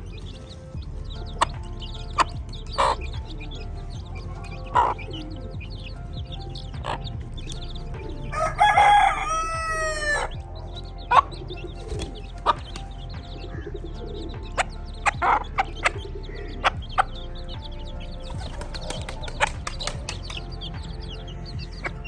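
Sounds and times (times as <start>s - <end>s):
chickens clucking: 0.2s - 22.0s
rooster crowing: 8.3s - 10.3s.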